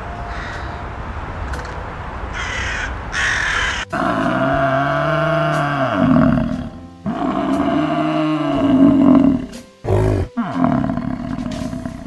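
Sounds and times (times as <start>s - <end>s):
bison bellowing: 3.9s - 12.0s.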